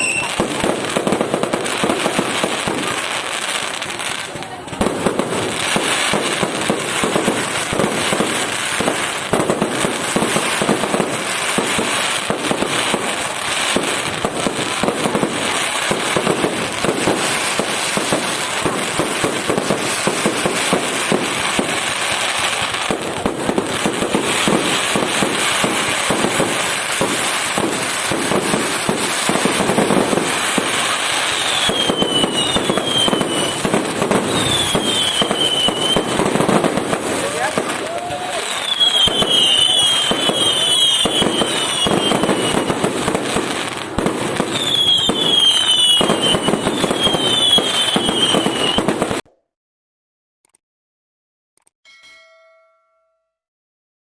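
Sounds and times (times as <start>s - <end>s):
falling firework whistles: 0.0s - 3.0s, 23.8s - 36.6s, 37.2s - 49.2s
fireworks bangs and pops: 0.0s - 49.3s.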